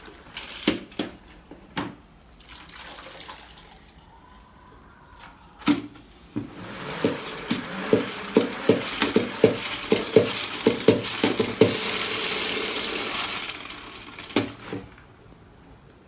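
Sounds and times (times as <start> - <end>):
mop head swishing spin: 6.4 - 14.6
mop spinner ratchet clicks: 7.7 - 14.5.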